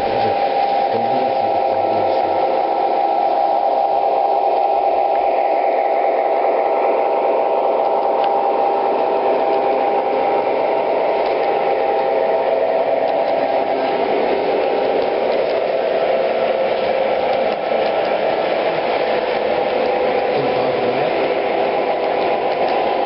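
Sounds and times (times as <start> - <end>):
model trains humming on track: 0.0 - 23.0.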